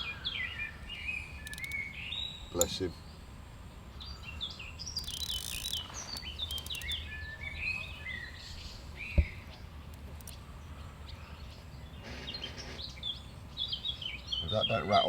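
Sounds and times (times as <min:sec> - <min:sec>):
birds chirping: 0:00.0 - 0:15.0
sharp thump: 0:09.1 - 0:09.4.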